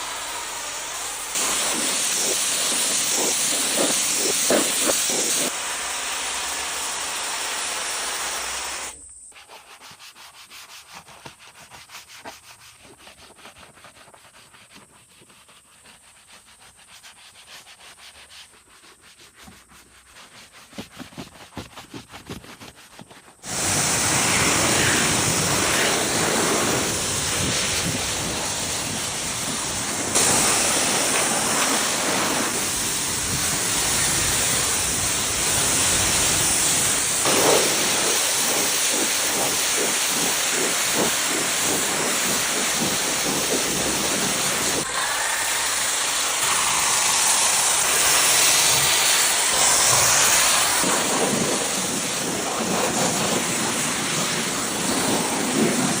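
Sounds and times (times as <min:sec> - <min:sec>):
high-pressure spray jet hissing: 0:00.0 - 0:09.1, 0:23.4 - 0:56.0.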